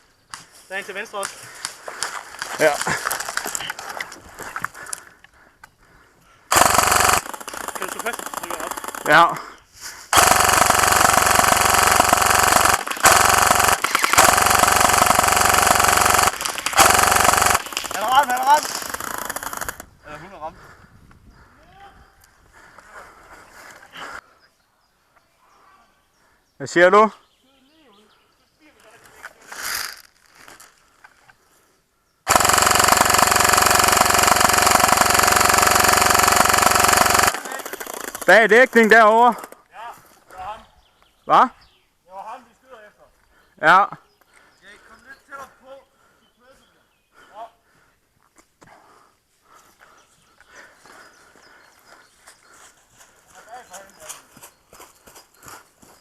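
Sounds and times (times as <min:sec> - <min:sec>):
airsoft gun firing bursts: 0:06.5 - 0:09.4, 0:10.2 - 0:19.8, 0:32.3 - 0:39.5.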